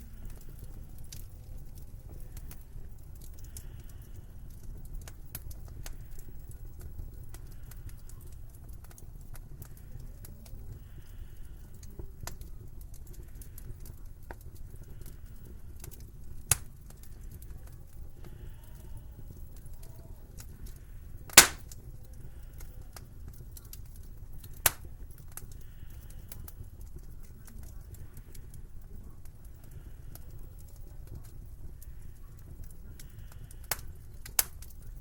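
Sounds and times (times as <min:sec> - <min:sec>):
wood fire crackling: 0:00.0 - 0:35.0
sharp fire pops: 0:15.8 - 0:17.8, 0:21.3 - 0:21.9, 0:23.3 - 0:26.4, 0:32.6 - 0:34.8.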